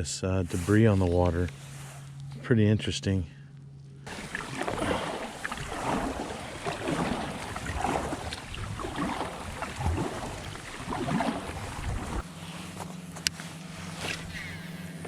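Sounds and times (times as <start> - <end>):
wind rushing: 4.1 - 12.2
water rushing around kayak: 4.1 - 12.8.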